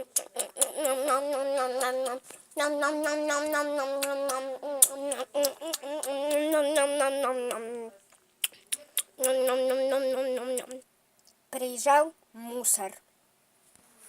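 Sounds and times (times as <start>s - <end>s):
high voice humming a tune: 0.0s - 10.9s.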